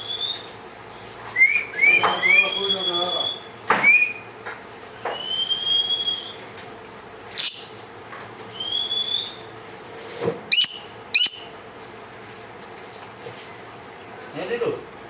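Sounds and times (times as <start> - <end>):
lovebird chirping: 7.3 - 7.8, 10.5 - 11.6.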